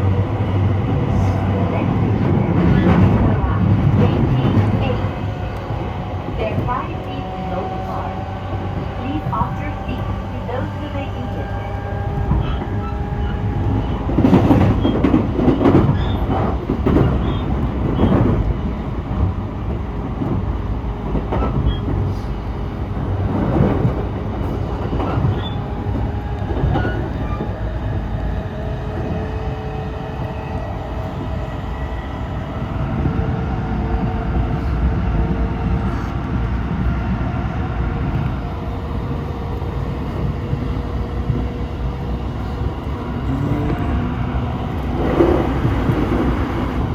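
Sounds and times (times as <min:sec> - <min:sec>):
train rumble with faint held tone: 0:00.0 - 0:46.9.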